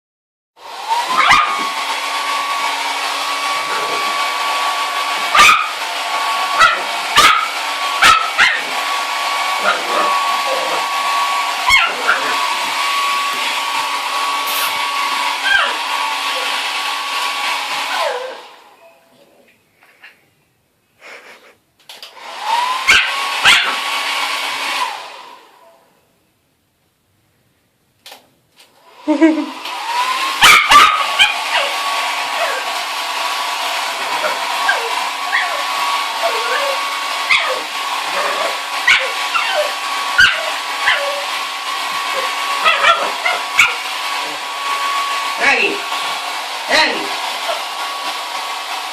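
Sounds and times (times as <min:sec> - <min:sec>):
hair dryer motor whine: 0:00.6 - 0:18.8, 0:21.9 - 0:25.8, 0:28.6 - 0:48.9
dog barking and yipping: 0:00.9 - 0:16.7, 0:17.8 - 0:18.6, 0:22.5 - 0:24.1, 0:30.0 - 0:32.8, 0:33.8 - 0:44.8
dog barking: 0:01.1 - 0:01.6, 0:05.3 - 0:05.8, 0:06.6 - 0:08.7, 0:11.6 - 0:12.4, 0:22.8 - 0:23.8, 0:30.4 - 0:31.8, 0:38.2 - 0:41.2, 0:42.6 - 0:43.8.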